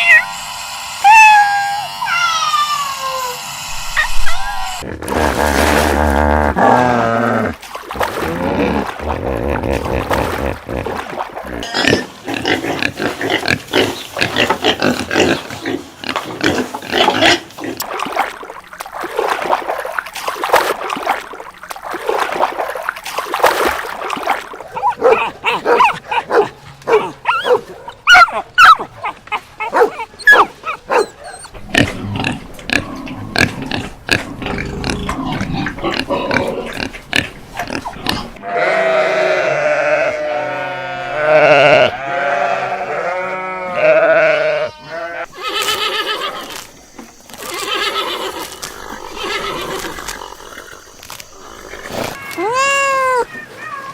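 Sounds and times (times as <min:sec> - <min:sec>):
pigs grunting and squealing: 0:01.1 - 0:21.3, 0:21.9 - 0:53.9
animal bleating: 0:38.0 - 0:46.6, 0:47.4 - 0:50.4.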